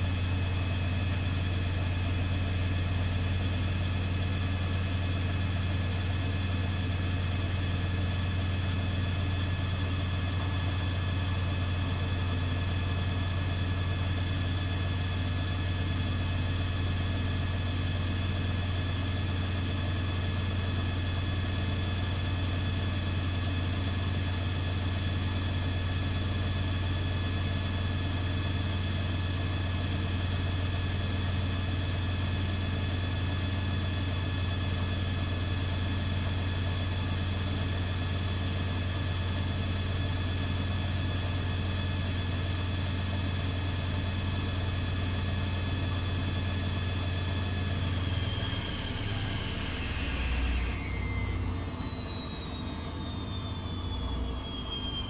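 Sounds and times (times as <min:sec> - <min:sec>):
washing machine spinning: 0:46.4 - 0:54.1.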